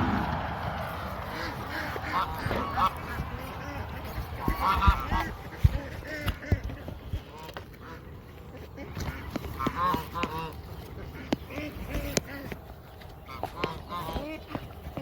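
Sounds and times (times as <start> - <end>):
low thumps: 0.0 - 6.6
geese honking: 0.0 - 15.0.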